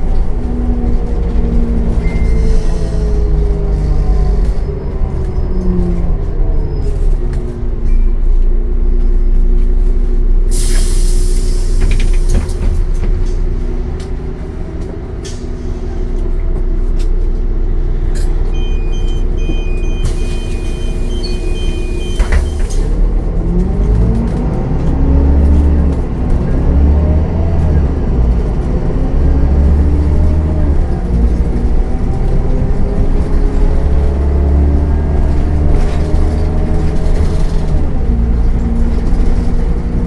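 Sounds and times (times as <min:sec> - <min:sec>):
bus diesel engine: 0:00.0 - 0:40.0
repeating electronic beep: 0:18.6 - 0:22.7.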